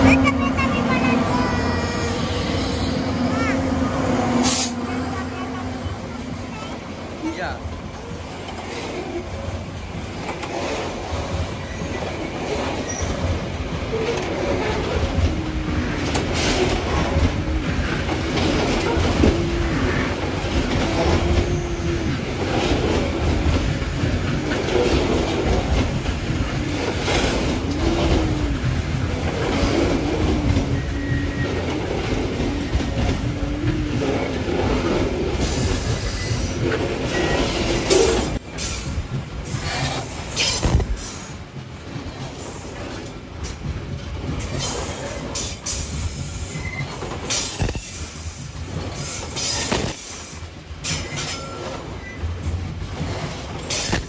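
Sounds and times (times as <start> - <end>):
low train rumble: 0.0 - 54.0.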